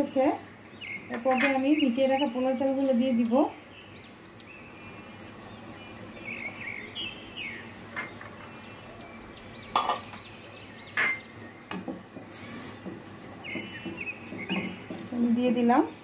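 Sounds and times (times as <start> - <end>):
small birds chirping: 0.0 - 16.0
wooden spoon stirring in pot: 11.9 - 15.6.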